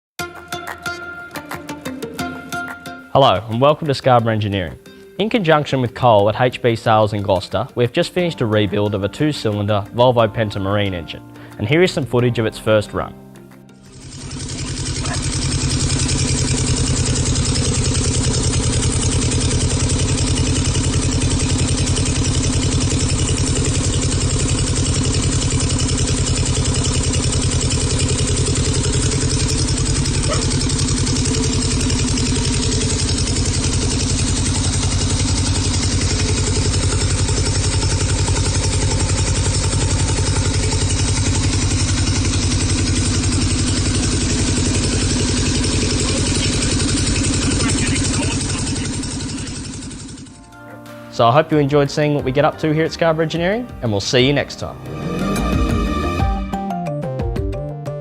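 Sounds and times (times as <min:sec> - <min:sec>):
marine engine running: 0:13.8 - 0:50.6, 0:54.6 - 0:56.6.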